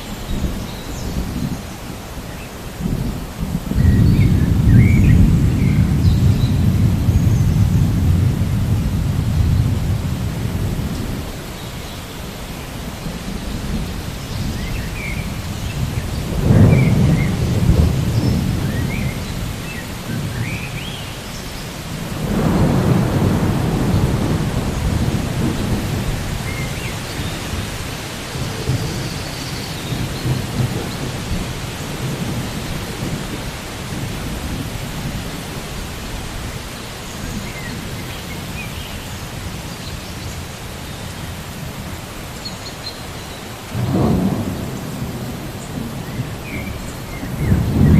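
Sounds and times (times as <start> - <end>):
steady rain: 0.0 - 47.9
thunder rolling: 2.8 - 11.6, 12.9 - 20.9, 21.9 - 35.3, 43.7 - 47.9.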